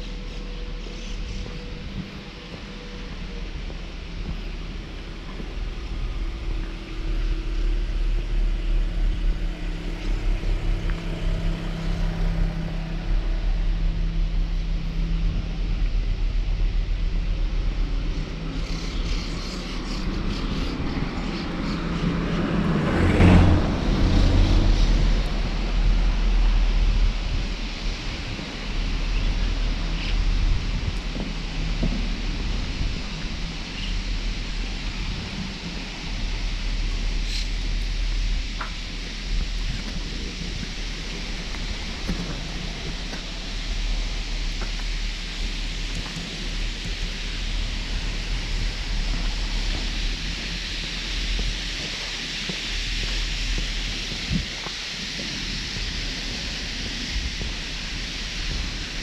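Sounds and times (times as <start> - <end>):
road traffic rumble: 0.0 - 59.0
vehicle passing close: 20.7 - 27.2.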